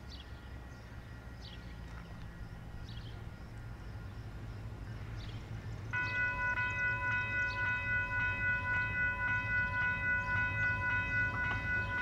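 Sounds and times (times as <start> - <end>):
distant diesel train rumble: 0.0 - 12.0
bird chirps: 4.9 - 12.0.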